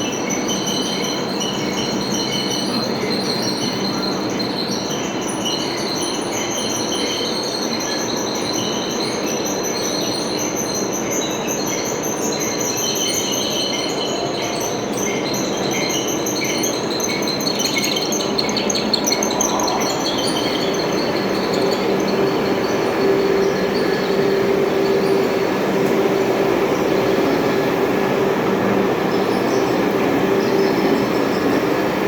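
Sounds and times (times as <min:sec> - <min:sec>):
metal lathe humming: 0:19.8 - 0:32.0.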